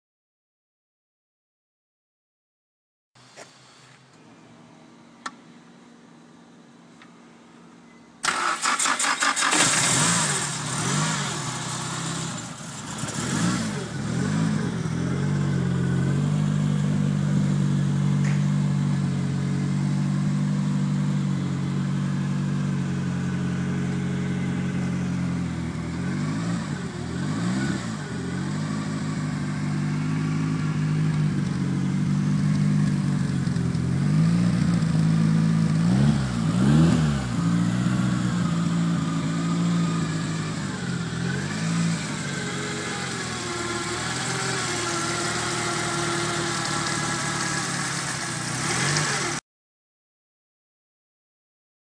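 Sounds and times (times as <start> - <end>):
car engine starting and revving: 8.2 - 49.4.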